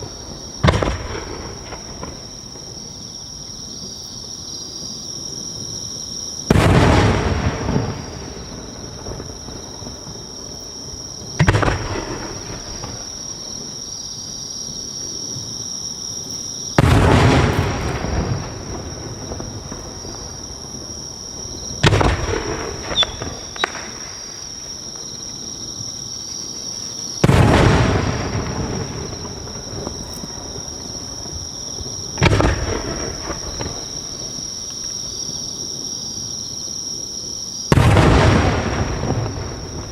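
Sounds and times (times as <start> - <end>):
firework shells booming: 0.0 - 2.8, 6.5 - 10.3, 11.1 - 13.3, 16.7 - 25.1, 27.2 - 34.5, 37.7 - 39.9
firework crackles: 0.0 - 3.1, 6.4 - 15.6, 16.2 - 35.9, 37.7 - 39.9
insect chirring: 8.0 - 21.8, 22.4 - 37.7
rolling echo: 16.8 - 20.8, 21.6 - 24.4.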